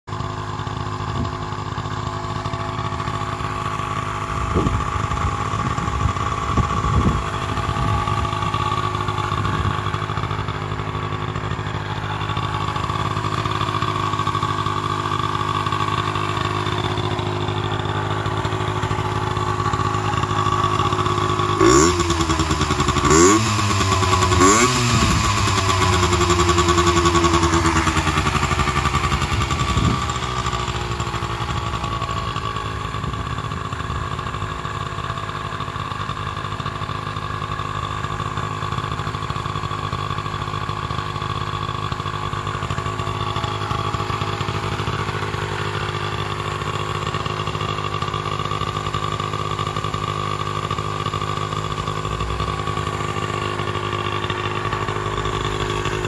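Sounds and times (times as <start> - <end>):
small engine idling: 0.1 - 56.0
small engine revving: 4.0 - 36.9, 37.5 - 56.0.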